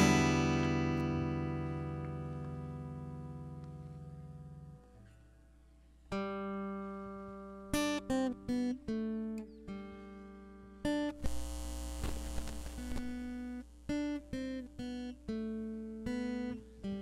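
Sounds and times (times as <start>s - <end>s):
strummed guitar chord: 0.0s - 4.9s
acoustic guitar plucked notes: 0.0s - 11.4s, 12.8s - 17.0s.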